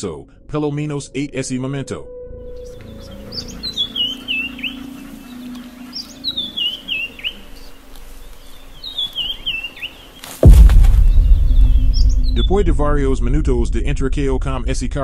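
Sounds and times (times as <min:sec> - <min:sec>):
bird singing high notes: 0:02.4 - 0:07.8
loud low rumble: 0:10.4 - 0:15.0.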